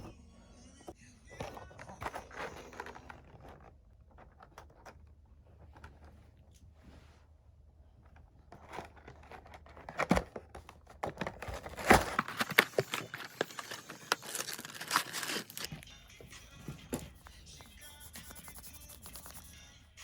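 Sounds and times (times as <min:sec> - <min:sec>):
plastic wrapper crinkling and tearing: 0:11.5 - 0:15.7.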